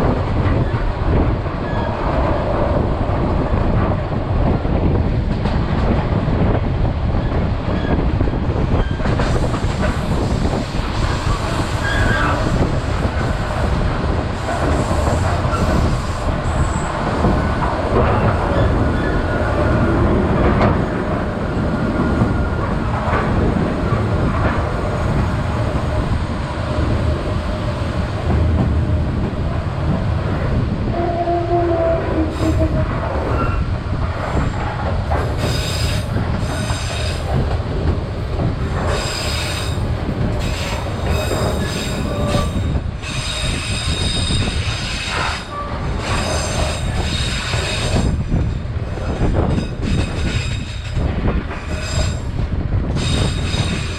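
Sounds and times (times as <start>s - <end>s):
train wheels rumbling: 0.0s - 53.9s.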